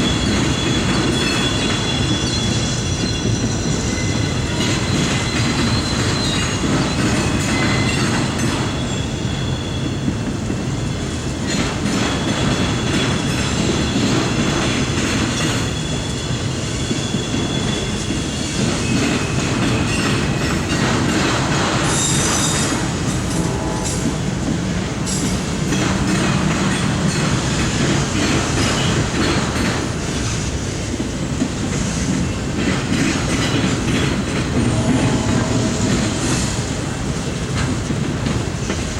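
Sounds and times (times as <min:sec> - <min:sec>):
high-pitched wheel squeals: 0:00.0 - 0:10.2, 0:15.3 - 0:20.6, 0:34.6 - 0:37.4
train wheels rumbling on track: 0:00.0 - 0:38.9.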